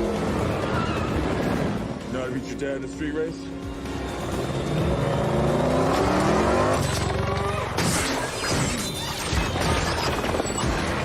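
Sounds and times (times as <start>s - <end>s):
car engine revving hard: 4.8s - 6.9s.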